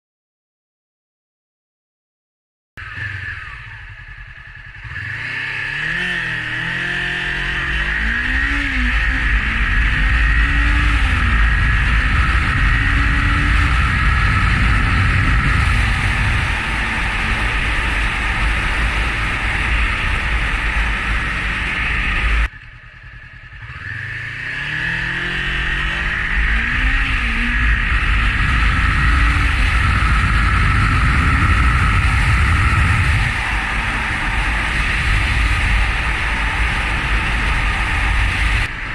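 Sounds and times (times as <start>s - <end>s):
motorcycle engine accelerating: 2.8s - 38.9s
wind noise on microphone: 5.9s - 22.5s, 24.6s - 38.9s.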